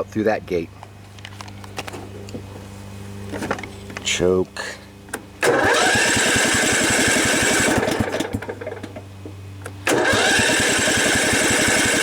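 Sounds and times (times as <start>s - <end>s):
electric starter whine: 5.1s - 9.0s, 9.6s - 12.0s
mower engine chugging: 5.4s - 12.0s.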